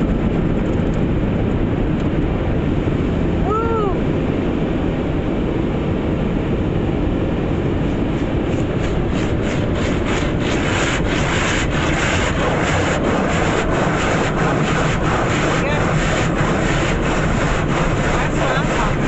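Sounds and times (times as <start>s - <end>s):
car wash brush rumbling: 7.4s - 19.0s
rhythmic swishing slaps: 8.1s - 19.0s.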